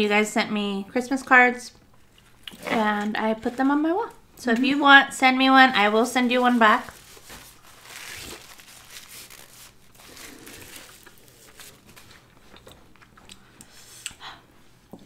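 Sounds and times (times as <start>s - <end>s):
person chewing food: 10.0s - 14.2s.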